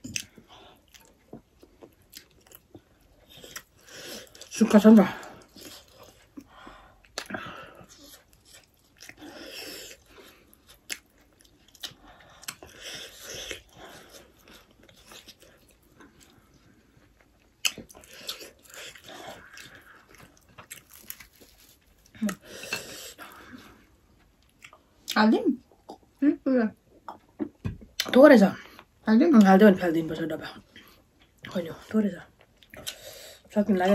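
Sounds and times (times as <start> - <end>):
people chewing: 0.0 - 26.1.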